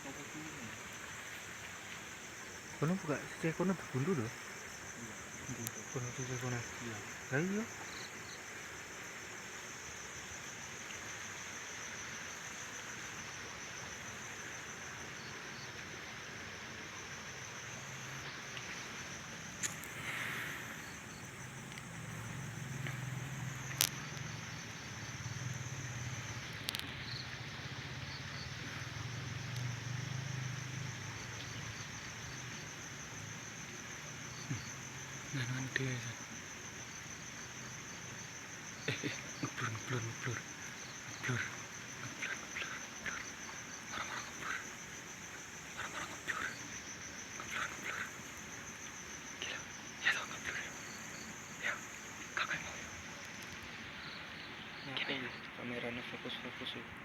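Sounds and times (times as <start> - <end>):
crickets chirping: 0.0 - 57.0
sharp clicks: 19.6 - 20.0.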